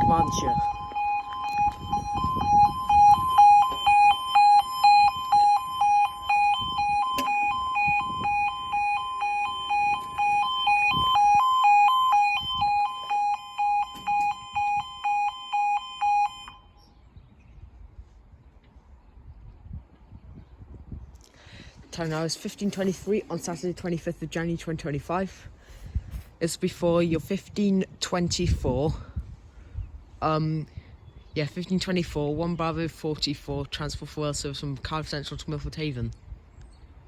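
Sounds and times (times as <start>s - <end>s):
level crossing alarm two-tone warble: 0.0s - 16.8s.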